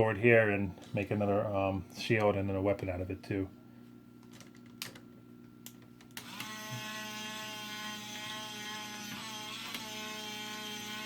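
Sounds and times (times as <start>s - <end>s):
toy motor whining: 6.2s - 11.0s.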